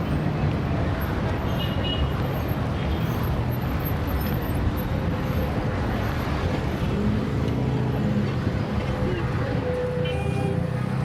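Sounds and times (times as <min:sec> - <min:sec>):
car and bus engines: 0:00.0 - 0:11.0
road noise: 0:00.0 - 0:11.0.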